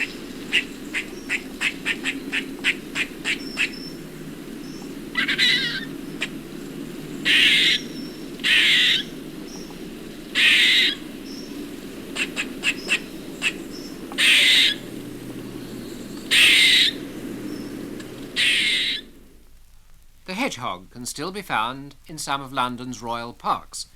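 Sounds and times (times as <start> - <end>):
squirrel rasping call: 0.0 - 19.4
squirrel chattering notes: 5.2 - 6.3, 14.2 - 14.8.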